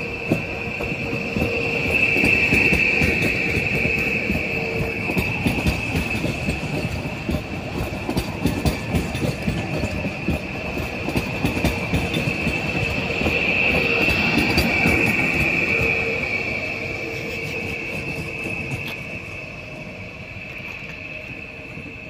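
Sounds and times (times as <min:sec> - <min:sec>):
train rumble: 0:00.0 - 0:22.0
train wheel squeal: 0:00.0 - 0:22.0
wheels clattering over rail joints: 0:00.2 - 0:16.4.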